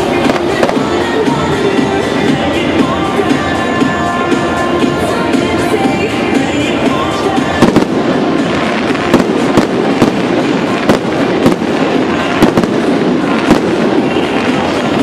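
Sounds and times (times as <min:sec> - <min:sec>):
firework shells bursting: 0:00.0 - 0:02.4, 0:06.8 - 0:15.0
continuous fireworks din: 0:00.0 - 0:15.0.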